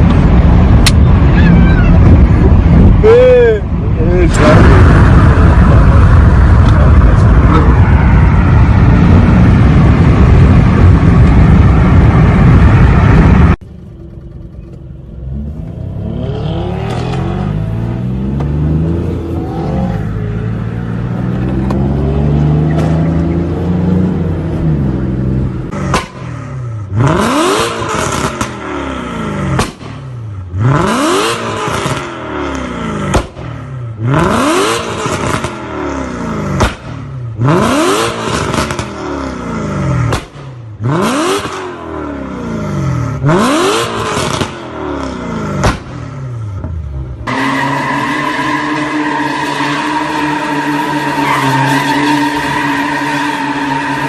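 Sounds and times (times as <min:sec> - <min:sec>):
car engine and exhaust roaring: 0:00.0 - 0:54.0
car engine revving: 0:14.6 - 0:54.0.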